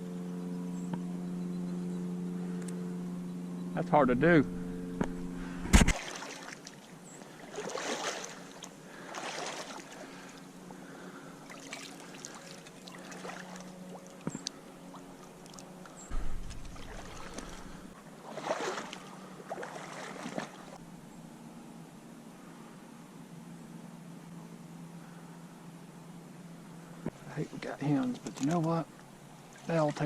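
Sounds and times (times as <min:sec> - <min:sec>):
faint steady hum: 0:00.0 - 0:30.0
water swishing and splashing: 0:05.6 - 0:10.4, 0:11.4 - 0:20.8, 0:27.5 - 0:28.8, 0:29.4 - 0:30.0.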